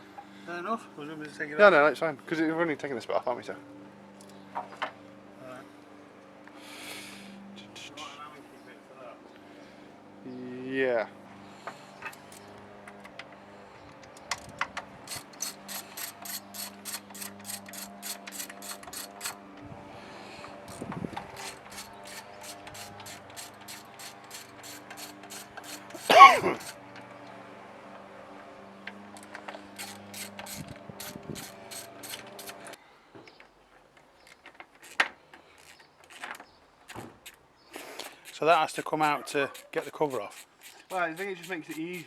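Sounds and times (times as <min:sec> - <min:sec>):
socket ratchet clicking: 0:14.1 - 0:19.4, 0:20.7 - 0:27.0, 0:29.2 - 0:32.8, 0:34.3 - 0:42.0.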